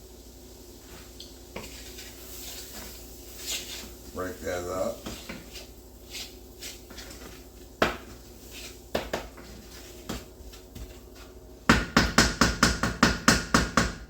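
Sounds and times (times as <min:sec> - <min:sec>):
utensil knocking against skillet: 0:08.9 - 0:10.3.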